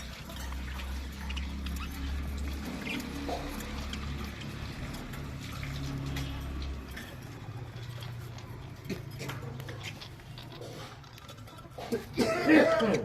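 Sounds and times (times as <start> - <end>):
budgerigars chirping: 0.0 - 8.5.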